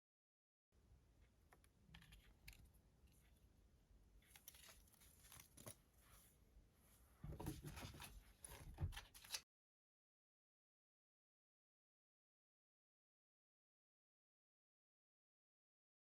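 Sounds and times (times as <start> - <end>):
cards clicking and rustling: 4.3 - 5.8, 7.4 - 9.4.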